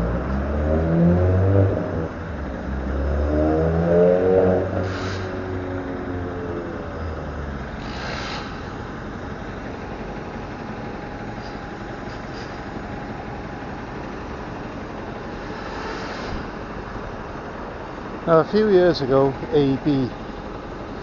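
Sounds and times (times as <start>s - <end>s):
large vehicle engine running: 0.0s - 21.0s
street noise: 0.0s - 21.0s
short hiss: 4.9s - 5.3s, 7.8s - 8.7s, 15.5s - 16.6s.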